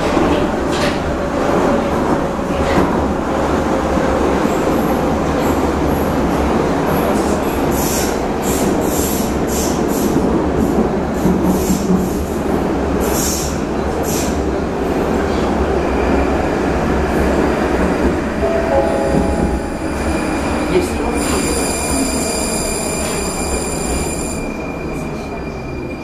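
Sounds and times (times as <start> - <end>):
train rumbling through tunnel: 0.0 - 26.0
wheels squealing on rails: 19.6 - 26.0.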